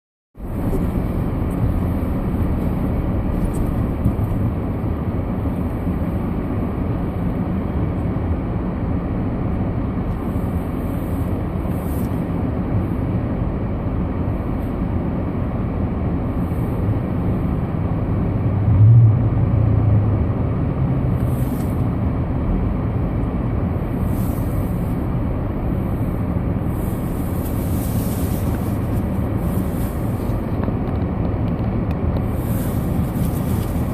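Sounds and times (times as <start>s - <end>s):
car interior engine and tyre noise: 0.4s - 33.9s.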